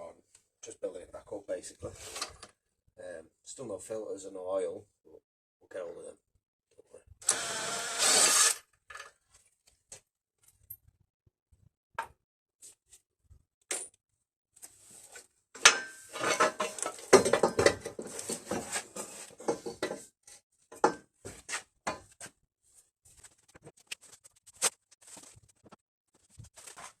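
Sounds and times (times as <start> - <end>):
metal tools clinking and rattling: 15.6 - 18.6
metal on metal clatter: 15.6 - 18.7.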